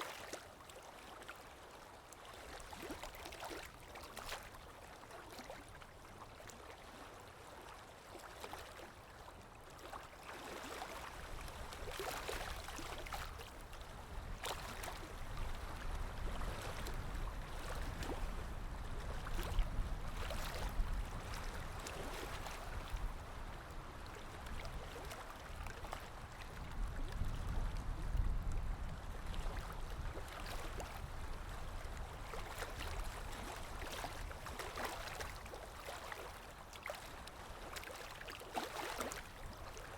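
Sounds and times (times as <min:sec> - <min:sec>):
water lapping and splashing: 0:00.0 - 0:39.9
low rumble of wind: 0:11.1 - 0:38.4.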